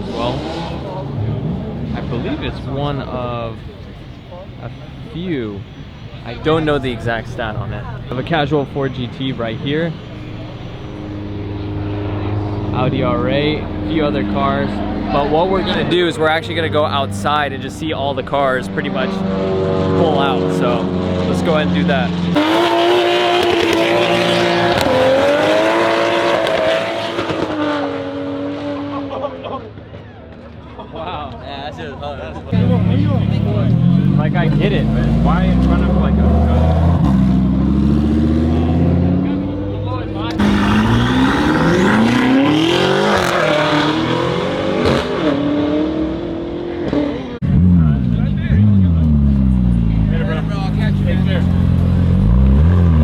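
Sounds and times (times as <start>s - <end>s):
noisy rush: 0.0s - 28.4s
car engine revving: 0.0s - 29.4s, 32.4s - 53.0s.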